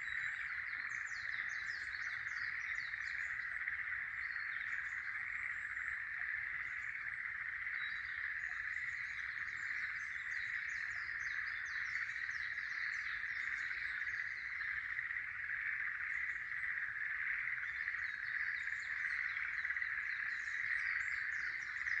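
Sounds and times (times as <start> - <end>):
birds singing: 0.0 - 22.0
frogs chorus: 0.0 - 22.0.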